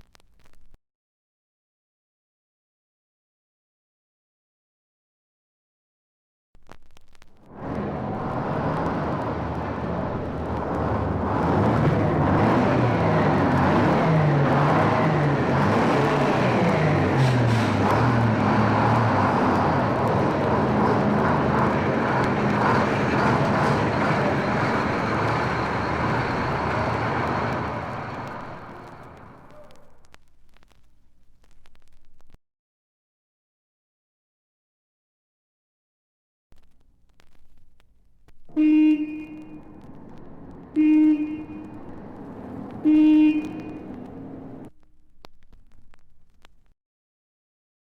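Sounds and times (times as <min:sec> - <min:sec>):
steady rushing noise: 0:06.7 - 0:32.4, 0:39.3 - 0:46.7
engine humming: 0:07.3 - 0:31.4, 0:36.6 - 0:46.5
vehicle horn blasts: 0:38.5 - 0:39.8, 0:40.7 - 0:41.9, 0:42.8 - 0:44.1.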